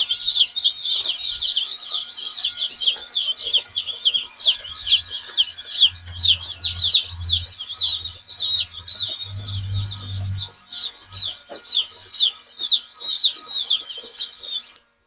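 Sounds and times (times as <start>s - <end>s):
chicks peeping: 0.0s - 14.9s
low hum: 3.6s - 12.3s.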